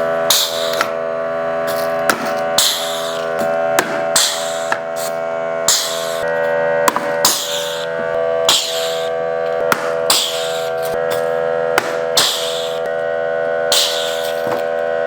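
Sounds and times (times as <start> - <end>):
sustained music chords: 0.0 - 15.0
percussive hits: 2.1 - 4.9, 6.9 - 7.9, 8.5 - 9.0, 9.6 - 12.8.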